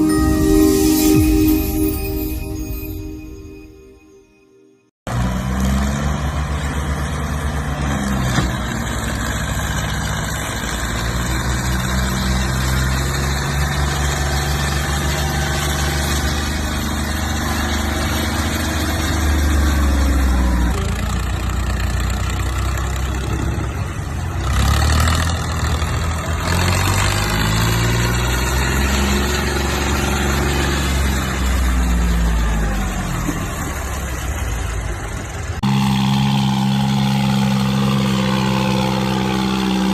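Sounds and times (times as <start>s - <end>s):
diesel tractor engine revving: 5.1s - 39.9s.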